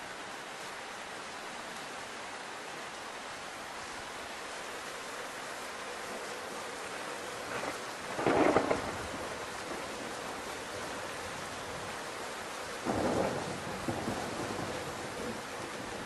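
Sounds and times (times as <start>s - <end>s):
steady rain: 0.0s - 16.0s
thunder claps: 7.6s - 9.9s.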